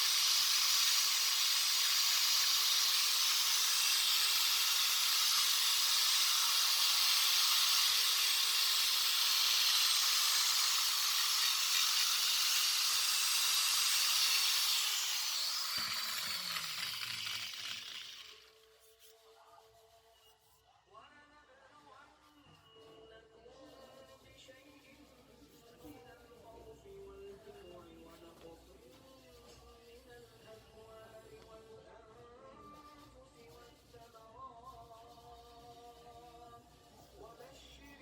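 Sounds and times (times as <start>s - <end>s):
high-speed power tool whirring: 0.0s - 18.6s.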